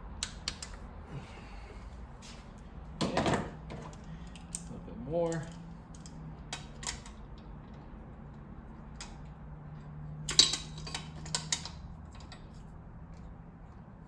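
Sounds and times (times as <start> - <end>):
metallic clicks of hand tools: 0.2 - 0.8, 10.3 - 12.5.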